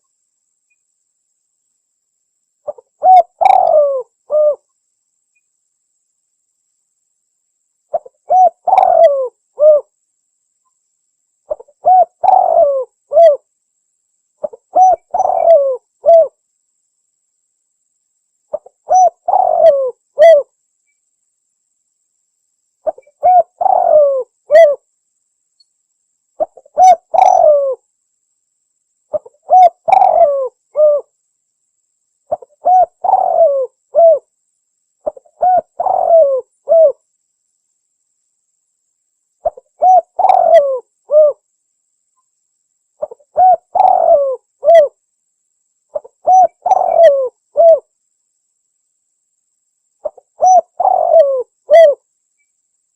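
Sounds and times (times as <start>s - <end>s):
dove cooing: 2.7s - 4.6s, 7.9s - 9.9s, 11.5s - 13.4s, 14.4s - 16.4s, 18.5s - 20.5s, 22.8s - 24.8s, 26.4s - 27.8s, 29.1s - 31.1s, 32.3s - 34.3s, 35.0s - 37.0s, 39.4s - 41.4s, 43.0s - 45.0s, 45.9s - 47.9s, 50.0s - 52.0s.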